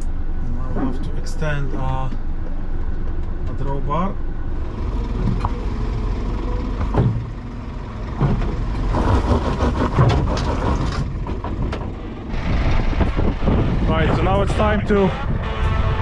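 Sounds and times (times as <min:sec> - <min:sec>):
diesel engine idling: 0:04.2 - 0:09.0, 0:11.0 - 0:16.0.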